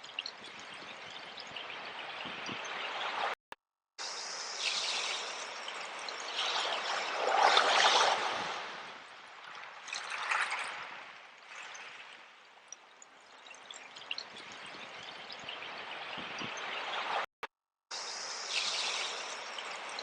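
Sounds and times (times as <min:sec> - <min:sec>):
sea waves washing in: 0:04.1 - 0:12.1.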